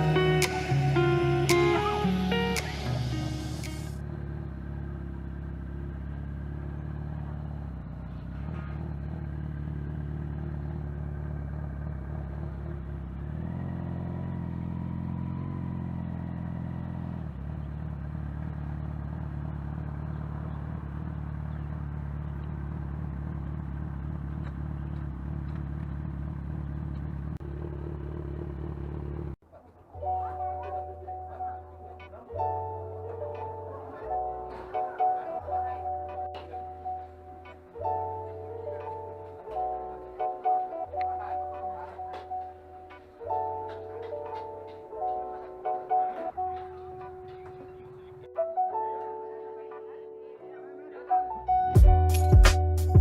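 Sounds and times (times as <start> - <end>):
motorcycle engine running: 0.0 - 29.4.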